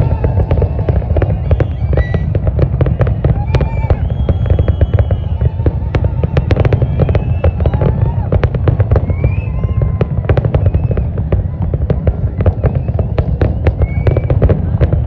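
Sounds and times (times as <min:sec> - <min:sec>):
fireworks crackling bangs: 0:00.0 - 0:15.0.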